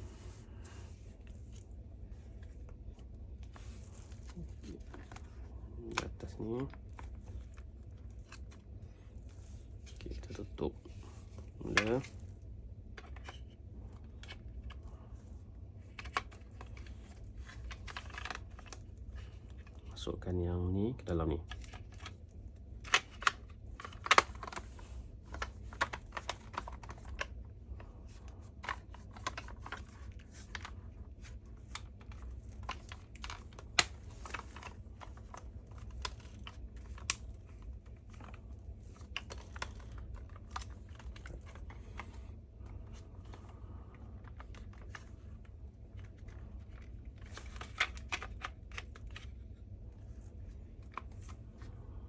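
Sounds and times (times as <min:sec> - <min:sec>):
plastic parts clicking and tapping: 0:15.8 - 0:19.8, 0:22.8 - 0:27.4, 0:28.1 - 0:49.4.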